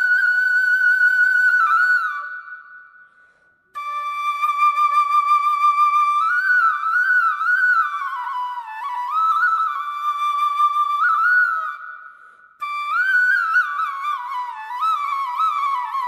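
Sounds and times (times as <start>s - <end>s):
solo flute slow melody: 0.0s - 16.0s.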